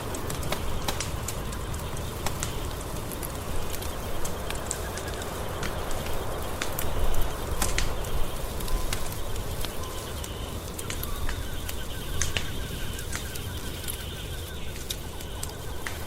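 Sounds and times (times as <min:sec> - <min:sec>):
wood fire crackling: 0:00.0 - 0:16.0
faint rapid high chirping: 0:03.6 - 0:16.0.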